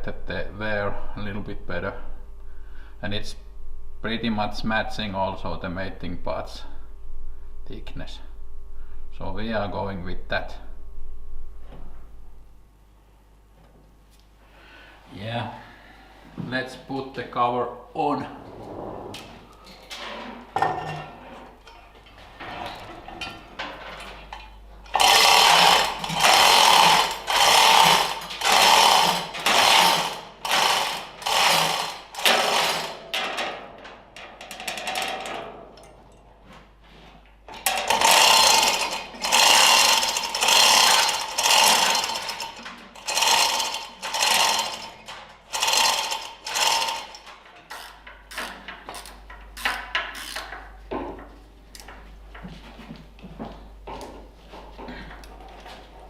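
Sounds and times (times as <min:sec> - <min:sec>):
hand tool rattling on bolts: 0:21.7 - 0:33.6, 0:37.5 - 0:50.7.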